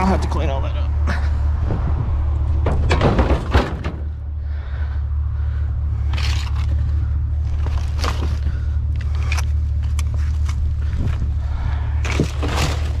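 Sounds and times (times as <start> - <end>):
truck engine rumbling: 0.0 - 13.0
knocks and clatter: 2.4 - 4.2.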